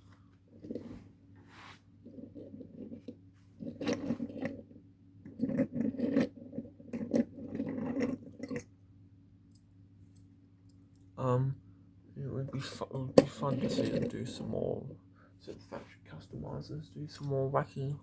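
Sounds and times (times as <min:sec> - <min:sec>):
steady low hum: 0:00.0 - 0:18.0
toy scraping and rubbing: 0:00.5 - 0:08.6, 0:13.4 - 0:14.3.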